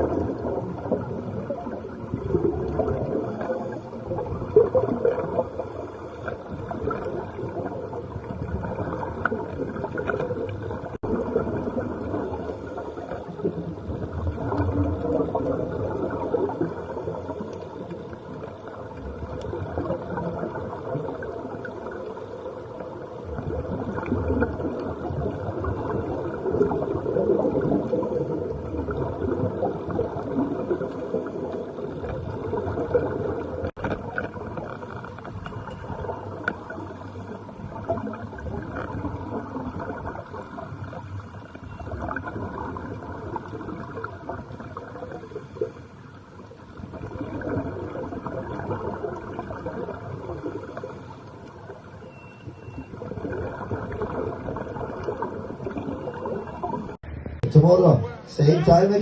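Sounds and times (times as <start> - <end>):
water rushing past hull: 0.0 - 59.0.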